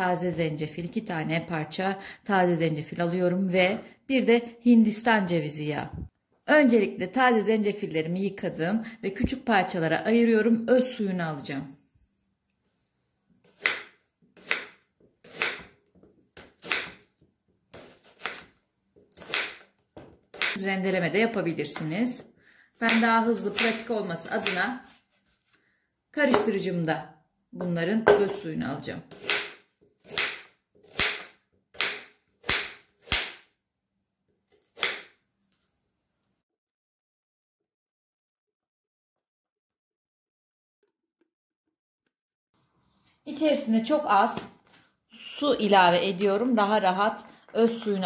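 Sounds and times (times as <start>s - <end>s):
knife slicing on cutting board: 17.7s - 18.5s.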